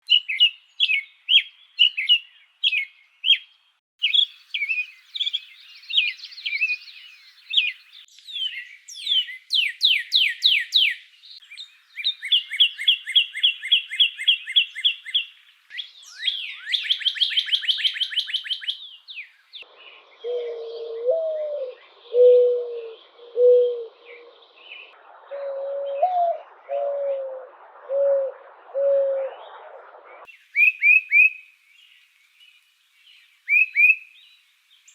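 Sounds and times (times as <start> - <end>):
bird warbling song: 0.1 - 34.9
birds chirping: 0.1 - 34.9
low whistled bird phrases: 20.2 - 31.4, 33.5 - 34.2
bird trill: 33.5 - 34.2.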